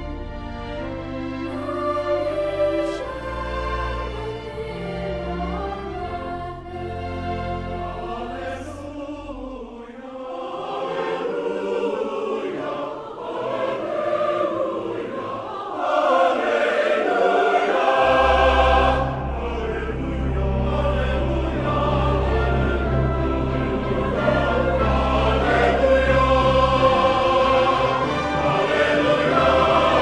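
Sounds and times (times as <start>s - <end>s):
choir singing: 0.0s - 30.0s
instrumental accompaniment: 16.5s - 30.0s.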